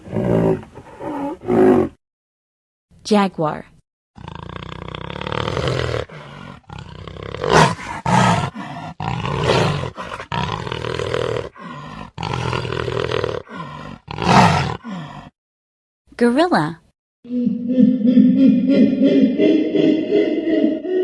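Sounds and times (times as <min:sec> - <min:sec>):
jaguar roaring and growling: 0:00.0 - 0:02.0, 0:04.2 - 0:15.3.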